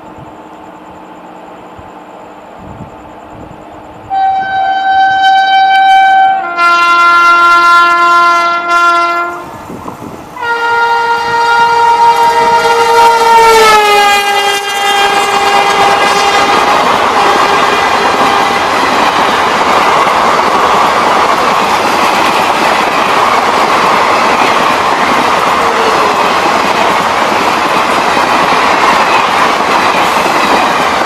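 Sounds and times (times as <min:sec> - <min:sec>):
train coaches rumbling and clacking: 0:00.0 - 0:31.0
locomotive horn blasts: 0:04.1 - 0:09.5, 0:10.4 - 0:18.7.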